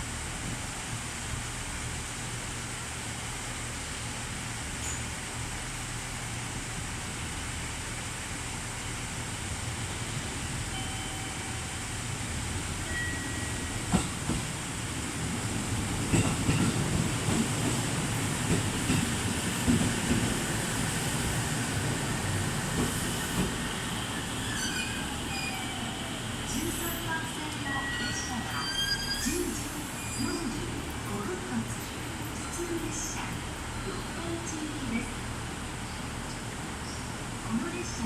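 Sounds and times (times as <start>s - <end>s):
electric train arriving: 7.7s - 38.0s.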